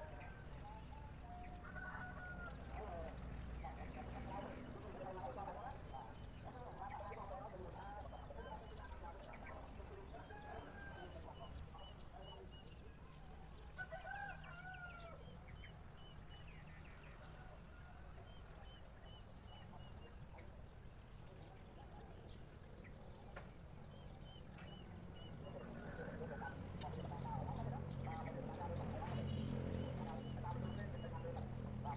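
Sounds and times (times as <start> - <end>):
rooster crowing: 1.4 - 2.9, 13.7 - 15.2.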